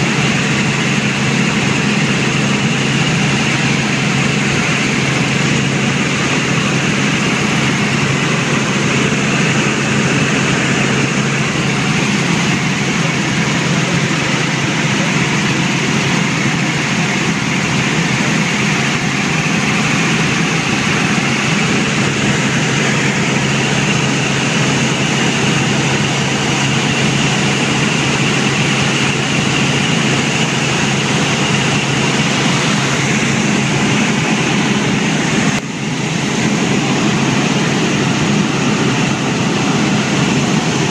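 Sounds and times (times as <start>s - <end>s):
helicopter engine and rotor drone: 0.0s - 40.9s.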